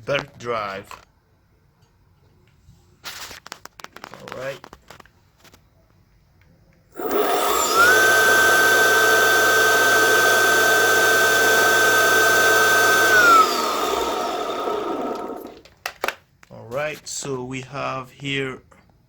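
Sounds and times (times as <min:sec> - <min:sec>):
belt and wheel running noise: 0:07.0 - 0:15.7
electric motor whine: 0:07.0 - 0:15.7.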